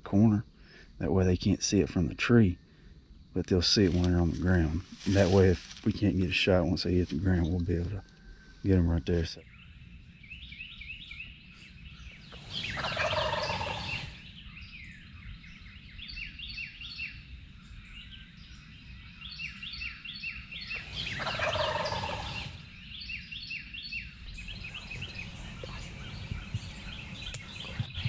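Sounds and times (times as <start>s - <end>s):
small birds chirping: 11.9s - 14.4s, 20.5s - 22.7s, 24.3s - 28.0s
turkey gobbling: 12.3s - 14.3s, 20.6s - 22.7s, 24.4s - 28.0s.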